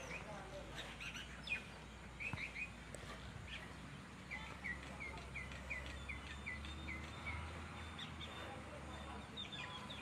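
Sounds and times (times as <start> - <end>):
bird chirping: 0.0 - 10.0
faint outdoor background: 0.0 - 10.0.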